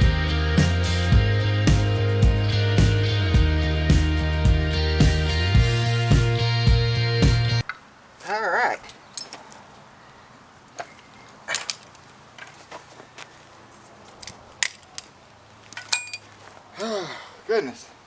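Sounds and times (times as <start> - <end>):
metal tools clinking: 8.9 - 9.5, 15.8 - 16.3.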